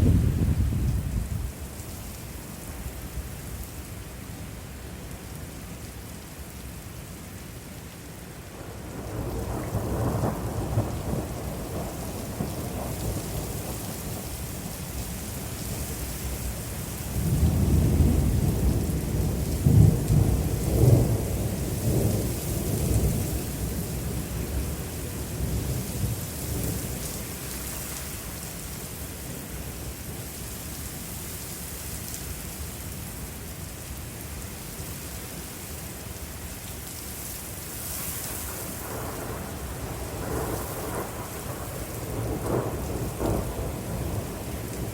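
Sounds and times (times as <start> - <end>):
thunder rolling: 0.0 - 1.5, 38.8 - 44.9
rain hissing: 9.5 - 44.9.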